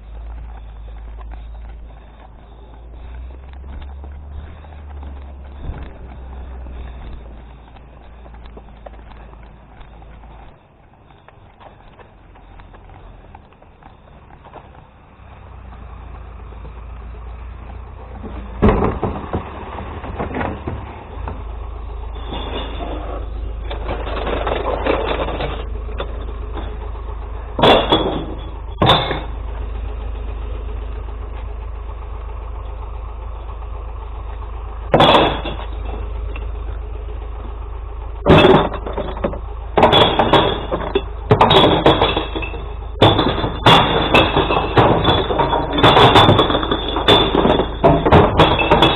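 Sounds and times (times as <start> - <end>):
truck engine idling: 0.0 - 48.9
glass knocking and clattering: 38.3 - 48.9.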